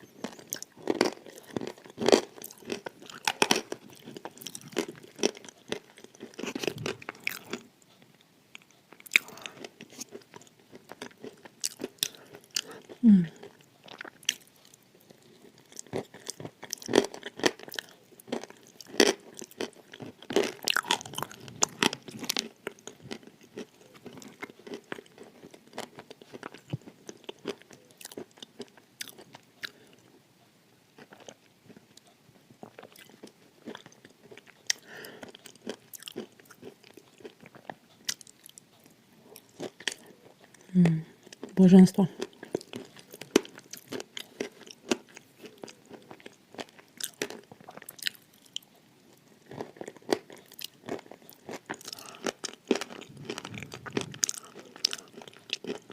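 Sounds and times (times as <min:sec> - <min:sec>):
crunching and chewing clay: 0:00.0 - 0:30.2, 0:31.0 - 0:55.9
low throat sound: 0:12.6 - 0:13.4, 0:53.0 - 0:55.0.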